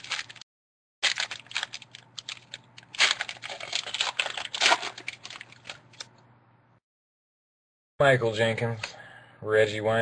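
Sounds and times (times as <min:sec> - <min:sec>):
trading cards rustling and clicking: 0:00.0 - 0:00.4, 0:01.0 - 0:06.1.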